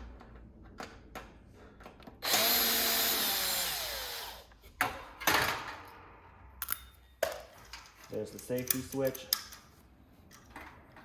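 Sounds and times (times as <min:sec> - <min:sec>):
power drill motor whining: 0:02.2 - 0:04.5.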